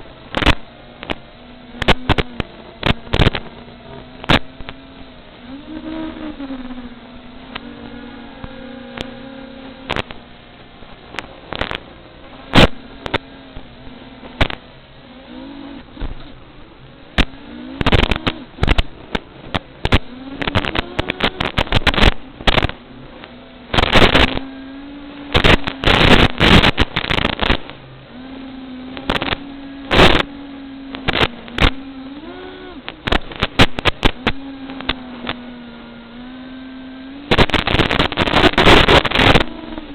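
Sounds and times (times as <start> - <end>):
drone propellers buzzing: 0.0 - 39.9
sharp crackles and pops: 0.1 - 16.4, 17.0 - 39.9.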